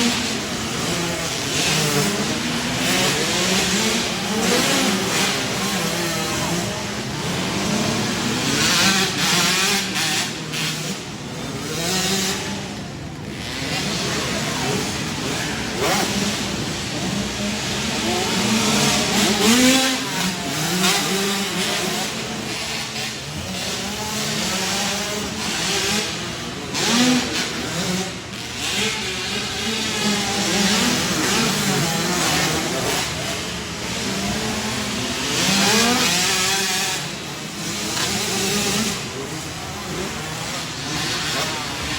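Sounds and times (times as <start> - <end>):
dirt bike engines revving: 0.0 - 41.9.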